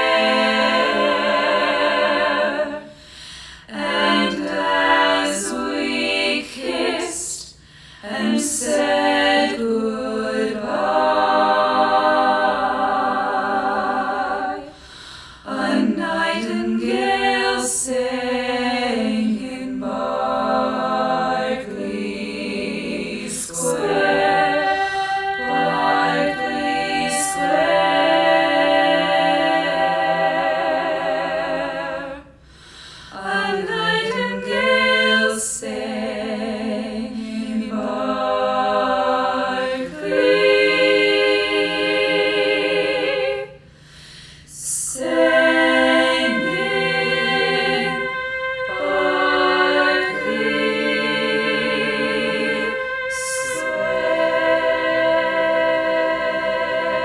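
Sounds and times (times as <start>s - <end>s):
a cappella harmony singing: 0.0s - 57.0s
singers breathing: 2.8s - 3.7s, 7.5s - 8.1s, 14.7s - 15.5s, 32.3s - 33.2s, 43.6s - 44.6s.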